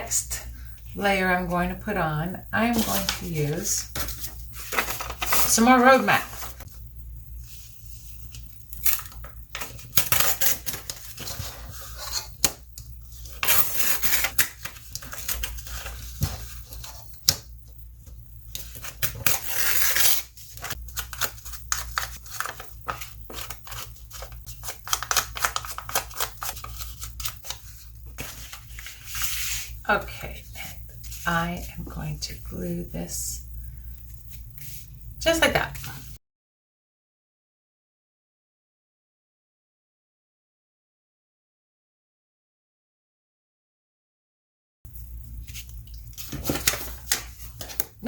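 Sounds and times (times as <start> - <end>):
paper rustling: 2.6 - 6.7, 7.4 - 17.5, 18.1 - 29.8, 45.4 - 48.0.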